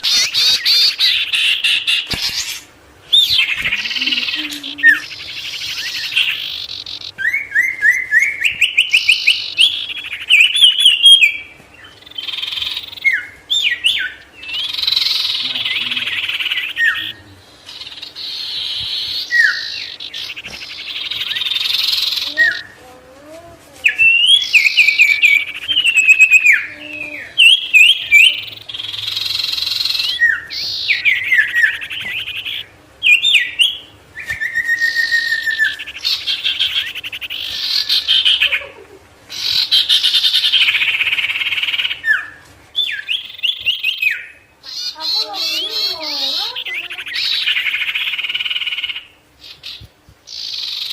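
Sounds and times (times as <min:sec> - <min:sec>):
songbird singing trills: 0:00.0 - 0:23.1, 0:23.8 - 0:50.9
faint low hum: 0:00.0 - 0:50.9.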